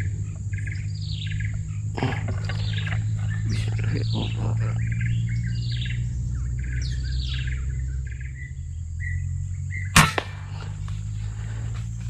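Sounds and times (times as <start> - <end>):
small birds chirping: 0.0 - 12.0
air rifle shot: 10.0 - 11.1.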